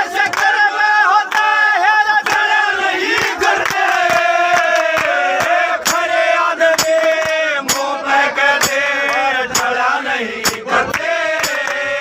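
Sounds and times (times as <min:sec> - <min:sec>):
steady drum strikes: 0:06.8 - 0:08.0, 0:08.6 - 0:08.8, 0:10.4 - 0:10.7, 0:11.4 - 0:11.7.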